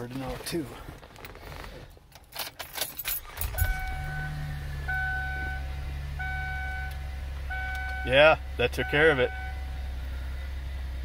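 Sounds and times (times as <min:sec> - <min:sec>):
car engine starting and idling: 0:01.0 - 0:11.0
keys jingling: 0:02.1 - 0:03.9
car warning chime beeping: 0:03.2 - 0:09.9.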